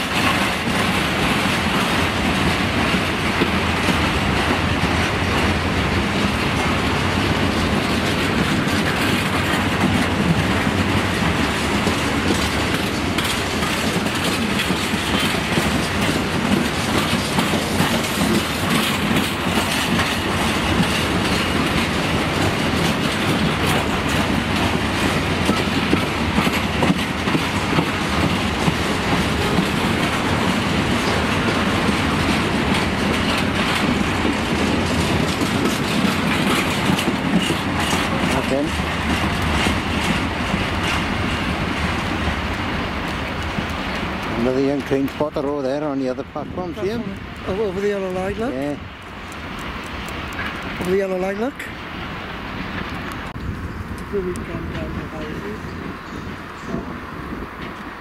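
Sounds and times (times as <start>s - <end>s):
train wheels clattering: 0.0s - 53.5s.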